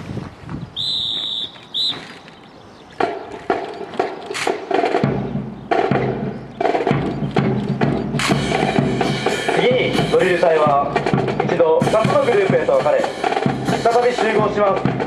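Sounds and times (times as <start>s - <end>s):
whistle blown: 0.8s - 2.2s
wood-block and drum strikes: 3.0s - 15.0s.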